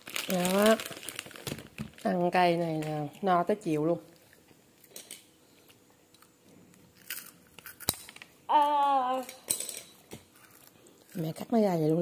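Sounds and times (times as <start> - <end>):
crunching of snack being chewed: 7.0 - 7.9.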